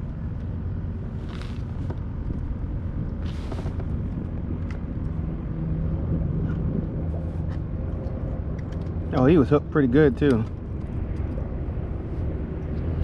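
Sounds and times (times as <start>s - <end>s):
steady low rumble: 0.0s - 13.0s
short hissing rustle: 3.2s - 3.8s.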